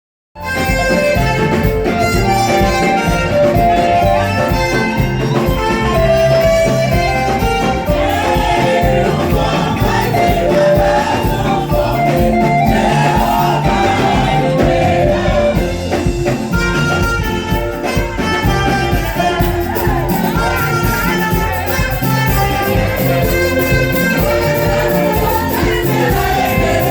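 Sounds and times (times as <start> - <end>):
band playing gospel music: 0.4 - 26.9
singing: 5.4 - 15.8, 19.0 - 26.9.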